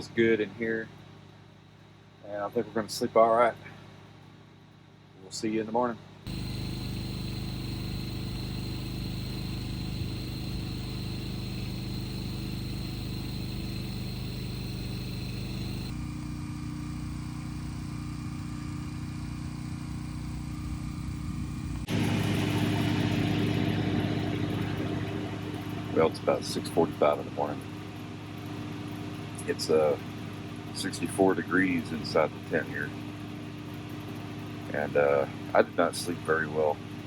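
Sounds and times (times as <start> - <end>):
generator engine running: 6.3 - 28.0.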